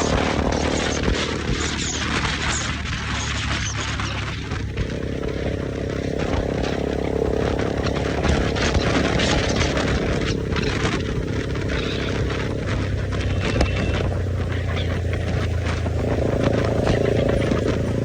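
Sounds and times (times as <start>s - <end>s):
motorcycle engine running: 0.0s - 18.0s
wind rush: 0.0s - 18.0s.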